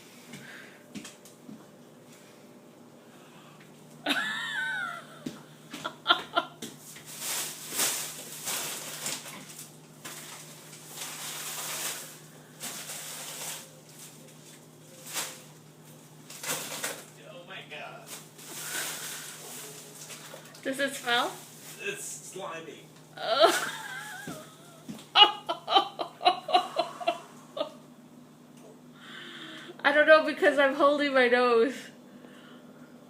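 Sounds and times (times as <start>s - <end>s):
faint steady hum: 0.0s - 33.0s
rustling and scraping food: 6.6s - 17.2s, 18.0s - 21.8s.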